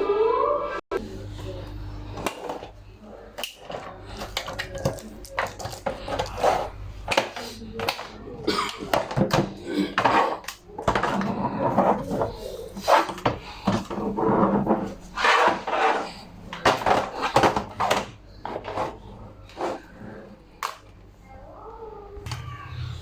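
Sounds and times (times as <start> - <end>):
hard objects clattering: 3.4 - 20.8.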